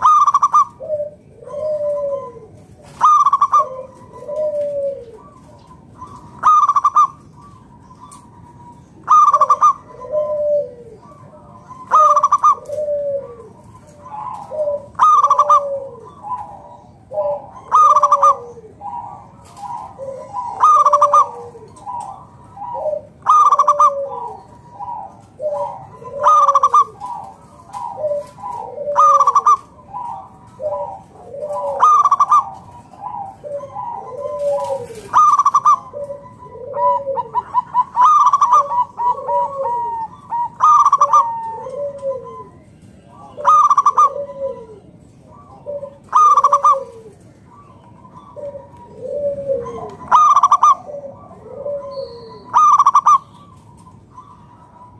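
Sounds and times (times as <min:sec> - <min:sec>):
dove cooing song: 0:00.0 - 0:54.9.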